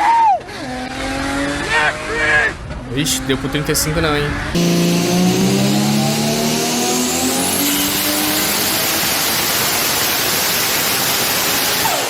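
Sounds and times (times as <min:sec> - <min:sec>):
wind and road noise: 0:00.4 - 0:04.6
car engine accelerating: 0:00.4 - 0:12.0.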